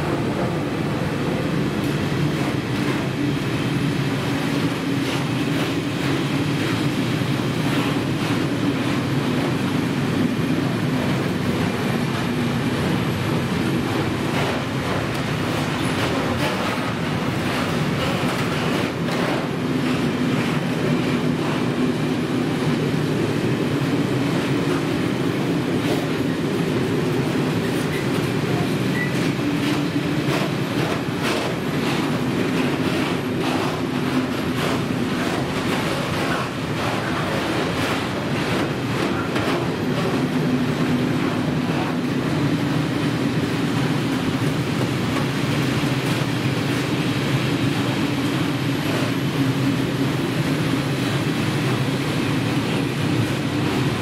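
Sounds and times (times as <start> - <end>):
rumble of wheels on rail: 0.0 - 54.0
wagons clattering over rail joints: 10.2 - 22.9, 24.4 - 42.9.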